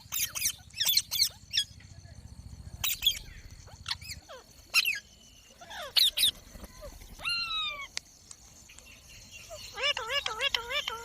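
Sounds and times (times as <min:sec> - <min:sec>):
parrot squawking: 0:09.5 - 0:11.0.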